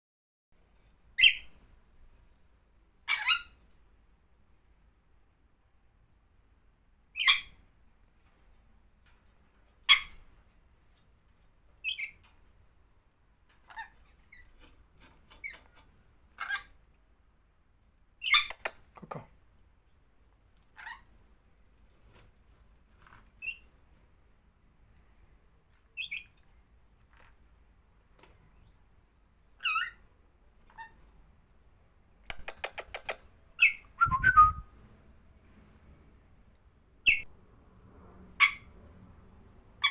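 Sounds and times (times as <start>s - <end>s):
parrot squeaking and squawking: 1.2s - 1.5s, 3.1s - 3.6s, 16.4s - 16.7s, 18.2s - 18.8s, 29.6s - 30.0s, 38.4s - 38.7s.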